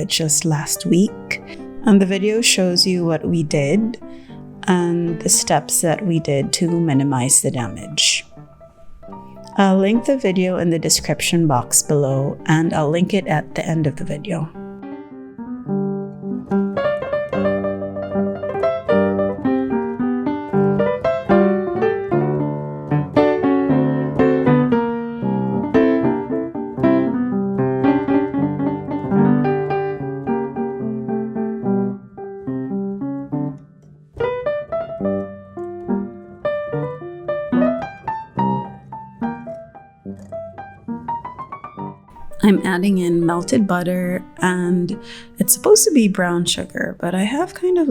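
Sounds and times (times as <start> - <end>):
gentle piano music: 0.0 - 47.9.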